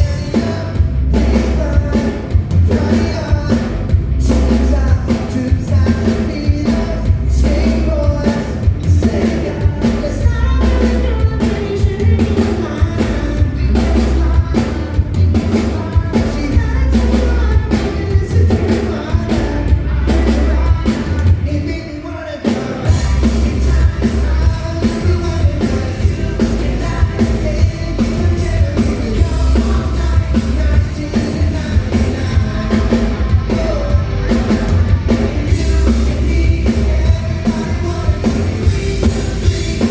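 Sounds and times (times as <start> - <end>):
person singing: 0.0 - 39.9
pop-rock band playing: 0.0 - 39.9.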